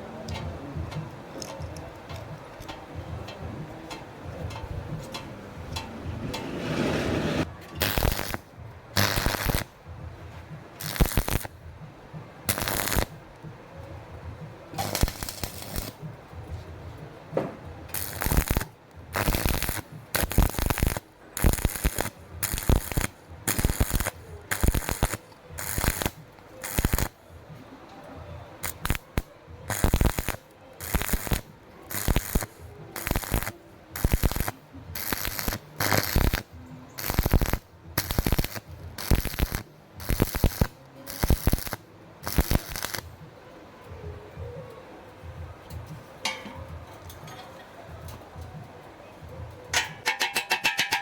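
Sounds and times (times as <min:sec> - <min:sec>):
welding arc crackling: 0:05.8 - 0:09.8, 0:10.8 - 0:11.6, 0:12.5 - 0:13.2, 0:14.8 - 0:16.1, 0:17.9 - 0:27.2, 0:28.6 - 0:43.2.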